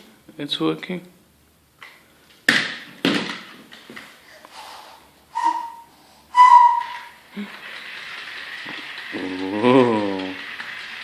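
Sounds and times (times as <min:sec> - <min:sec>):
short high-pitched tones: 0:05.3 - 0:07.1.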